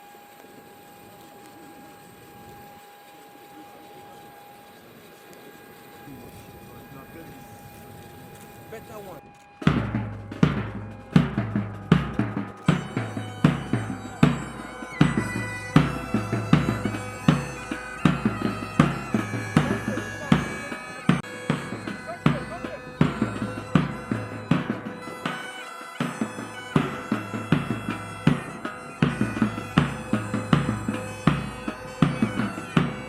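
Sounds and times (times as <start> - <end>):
bagpipes playing: 0.0 - 33.0
drum beat: 8.7 - 33.0.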